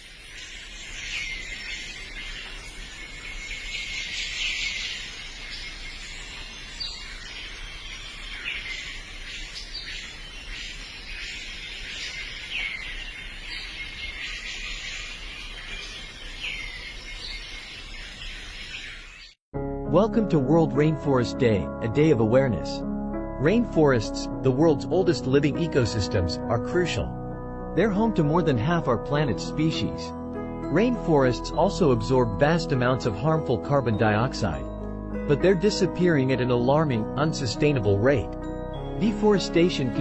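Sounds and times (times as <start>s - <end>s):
steady high-pitched hiss: 0.0s - 18.7s
bird chirping call: 0.0s - 19.4s.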